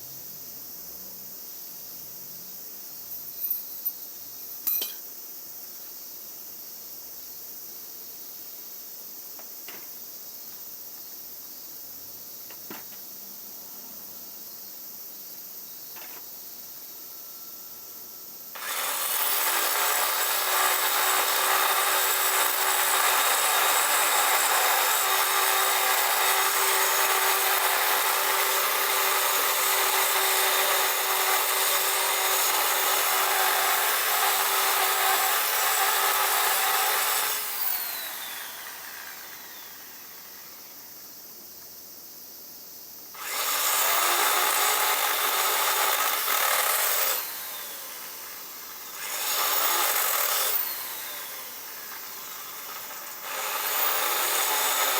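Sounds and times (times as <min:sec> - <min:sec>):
power tool grinding: 0:18.6 - 0:40.7, 0:43.2 - 0:54.9
motor spinning down: 0:37.2 - 0:40.2, 0:49.0 - 0:52.1.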